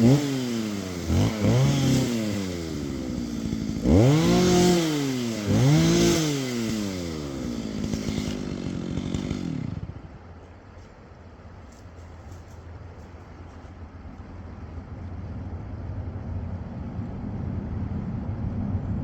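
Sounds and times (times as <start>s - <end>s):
chainsaw engine revving: 0.0s - 10.1s.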